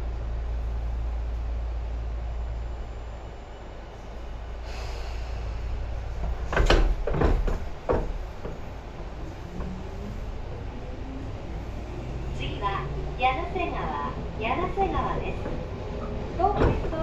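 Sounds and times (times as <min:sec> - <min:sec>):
electric train rumbling: 0:00.0 - 0:17.0
loud knocks: 0:06.2 - 0:09.1.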